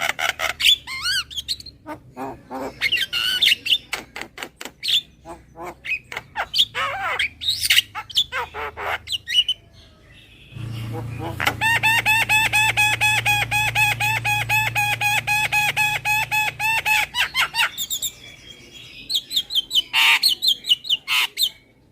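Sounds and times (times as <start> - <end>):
myna bird calling: 0.0 - 21.9.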